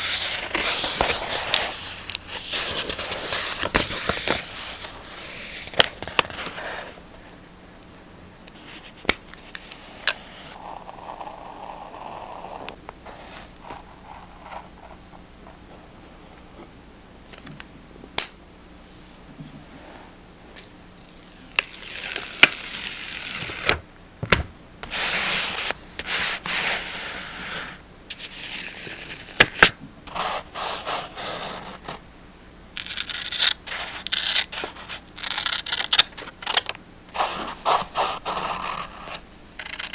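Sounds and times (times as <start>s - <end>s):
paper rustling and rubbing: 0.0s - 7.0s, 24.8s - 29.4s, 30.1s - 32.0s, 37.1s - 39.9s.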